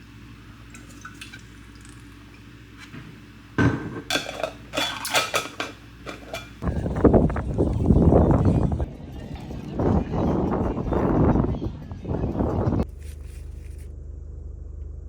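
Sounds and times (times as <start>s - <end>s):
dishes and cutlery clattering: 2.8s - 6.6s.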